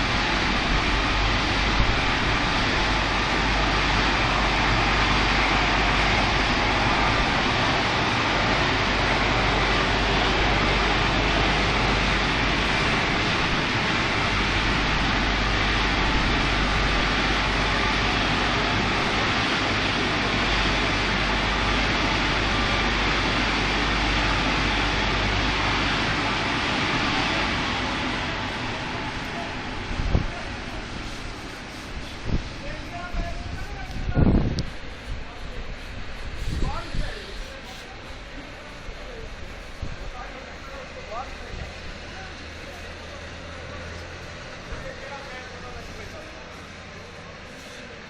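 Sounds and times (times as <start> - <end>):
car wash motors rumbling: 0.0 - 48.0.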